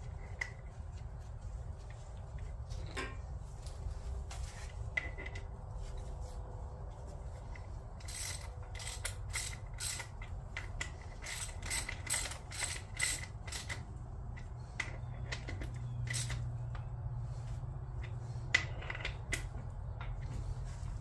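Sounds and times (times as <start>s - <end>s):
ratchet wrench clicking: 8.0s - 16.5s.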